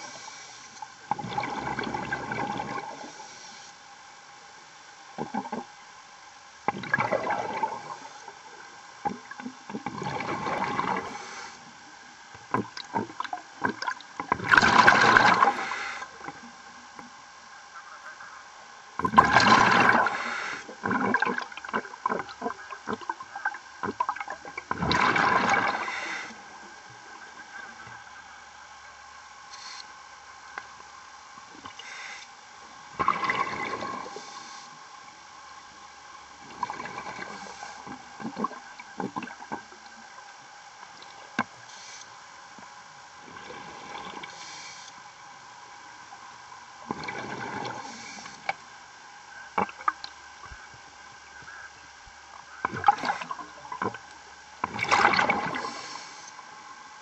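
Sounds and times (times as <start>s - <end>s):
diver breathing through regulator: 0.0s - 0.8s, 2.9s - 3.8s, 10.8s - 11.7s, 15.4s - 16.2s, 19.9s - 20.8s, 25.6s - 26.4s, 31.6s - 32.3s, 33.7s - 34.8s, 37.1s - 38.0s, 43.6s - 45.0s, 47.3s - 48.5s, 55.5s - 56.4s
faint steady hum: 0.0s - 57.0s
exhaled bubbles gurgling: 0.9s - 3.2s, 5.2s - 5.7s, 6.6s - 11.6s, 12.4s - 16.6s, 19.0s - 27.9s, 32.8s - 35.2s, 36.3s - 40.3s, 43.2s - 44.4s, 46.8s - 48.6s, 49.4s - 50.8s, 52.5s - 56.2s.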